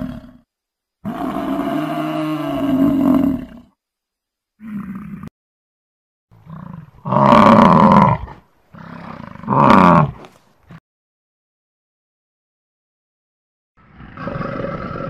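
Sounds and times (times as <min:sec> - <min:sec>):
animal deep bellowing: 0:01.0 - 0:03.7, 0:06.4 - 0:10.3, 0:13.8 - 0:15.0.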